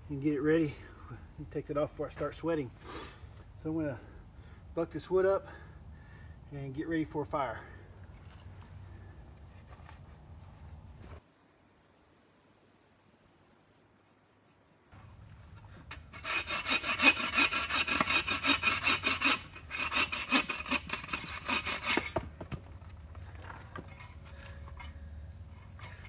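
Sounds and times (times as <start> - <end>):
hand saw cutting log: 15.5 - 22.6
scraping and handling sounds: 20.5 - 26.0.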